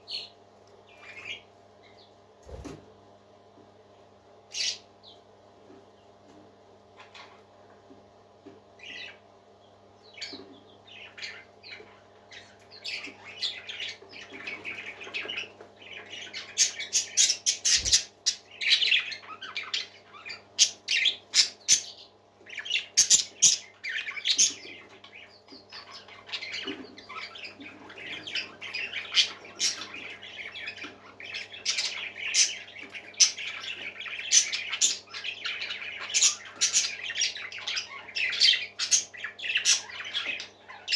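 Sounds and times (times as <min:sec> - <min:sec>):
faint steady hum: 0:00.0 - 0:40.9
parakeets chirping and squawking: 0:00.1 - 0:02.8, 0:04.5 - 0:04.9, 0:06.9 - 0:07.6, 0:08.8 - 0:09.2, 0:10.1 - 0:40.9.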